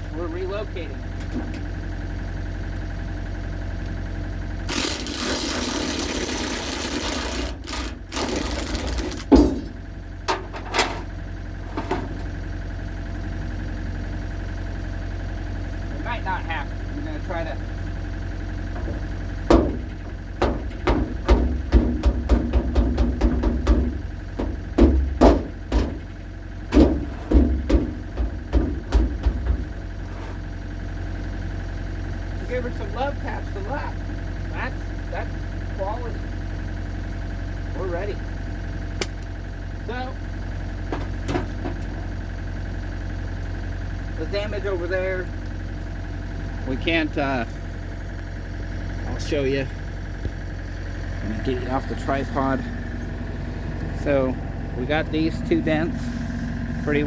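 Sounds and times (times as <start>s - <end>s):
low engine hum: 0.0s - 57.0s
metal clanks and knocks: 6.6s - 12.2s, 18.7s - 26.1s, 26.7s - 29.8s.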